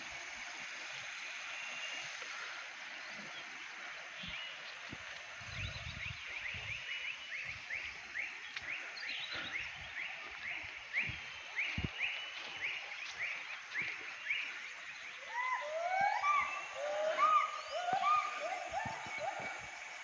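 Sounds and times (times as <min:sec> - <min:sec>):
lower-pitched arching animal call: 0:15.2 - 0:20.0.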